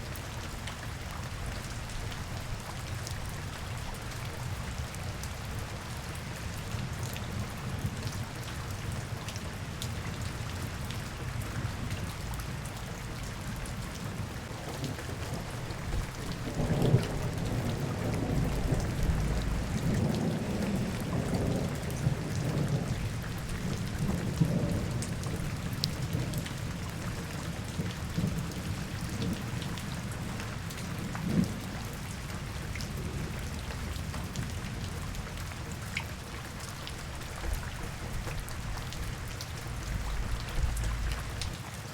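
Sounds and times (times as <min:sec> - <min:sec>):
steady rain falling: 0:00.0 - 0:41.9
low rumble: 0:39.8 - 0:41.5.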